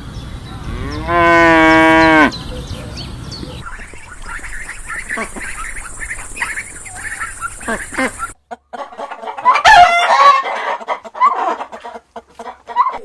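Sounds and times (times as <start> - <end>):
chickens clucking: 1.9 - 13.0
rooster crowing: 9.4 - 10.8.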